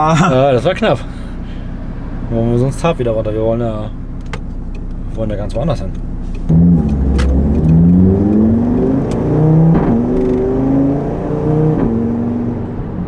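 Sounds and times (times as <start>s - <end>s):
car engine accelerating hard: 6.3s - 13.0s.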